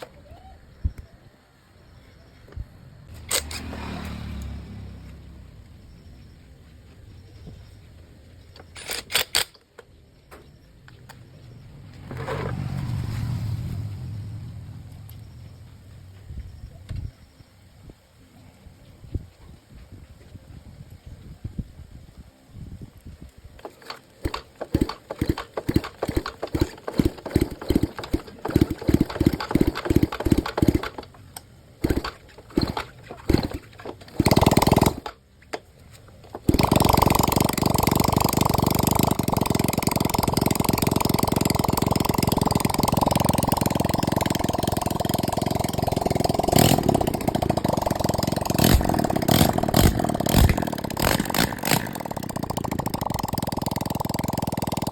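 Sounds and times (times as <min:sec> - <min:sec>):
motorcycle engine starting: 0:03.1 - 0:06.3, 0:11.4 - 0:16.4, 0:23.6 - 0:54.9
engine idling: 0:24.2 - 0:35.2, 0:36.3 - 0:54.9.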